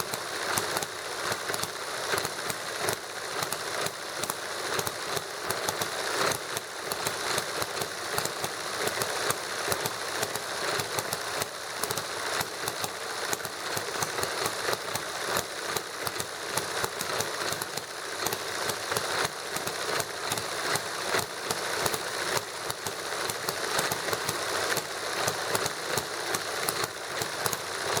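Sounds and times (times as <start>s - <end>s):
small engine clattering: 0.0s - 28.0s.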